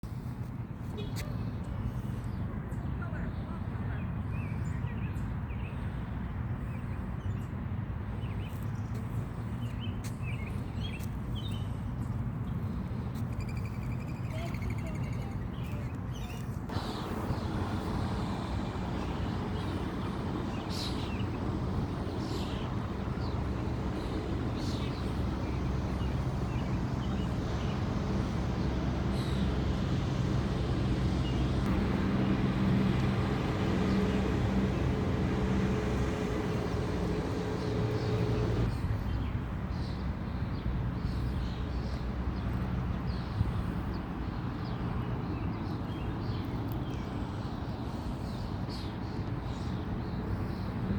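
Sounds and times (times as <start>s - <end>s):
small birds chirping: 8.2s - 50.9s
rushing noise: 16.7s - 38.8s
steady low rumble: 16.7s - 39.1s.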